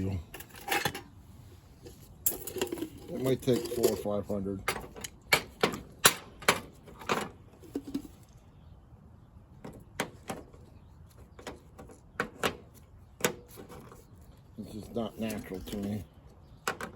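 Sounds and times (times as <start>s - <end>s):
tools clicking and knocking: 4.6s - 8.1s.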